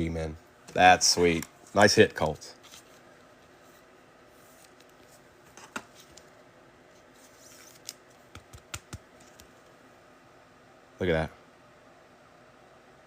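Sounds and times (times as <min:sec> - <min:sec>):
trading cards clicking and tapping: 0:07.7 - 0:09.6.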